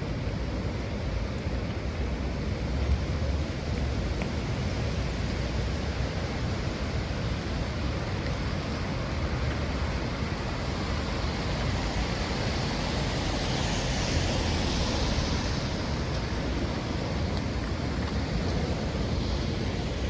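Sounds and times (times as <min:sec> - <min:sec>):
rain on wet street: 0:00.0 - 0:20.0
hiss: 0:10.7 - 0:16.3.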